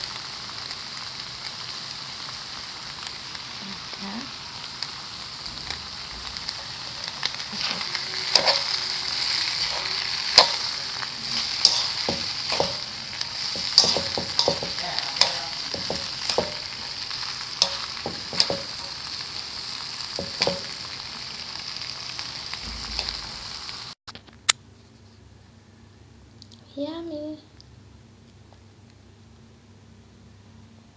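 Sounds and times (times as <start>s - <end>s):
noodles sizzling in a pan: 0.0s - 24.0s
spatula knocking and scraping pan: 7.5s - 8.8s, 9.6s - 19.1s, 20.1s - 20.9s.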